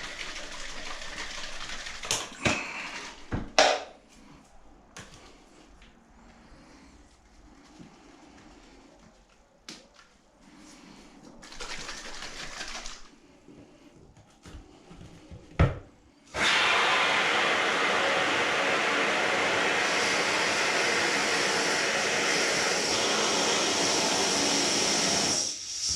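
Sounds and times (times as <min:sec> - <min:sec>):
spray can being shaken: 0:11.4 - 0:13.1
spray foam hissing: 0:16.4 - 0:25.9.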